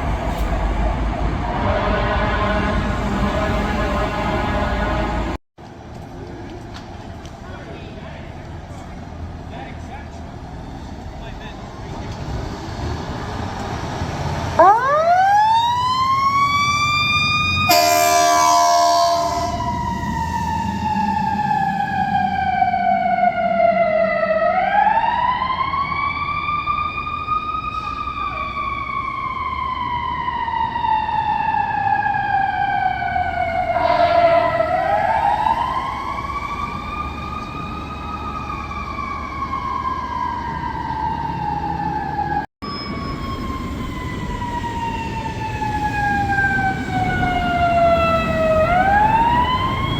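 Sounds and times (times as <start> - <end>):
truck air horn blast: 1.4 - 5.4, 17.7 - 20.0, 33.8 - 34.5
fire truck siren wailing: 13.9 - 49.9.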